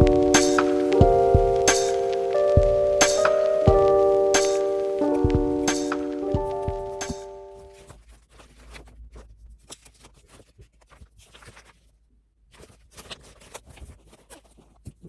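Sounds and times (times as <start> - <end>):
held music notes: 0.0 - 7.8.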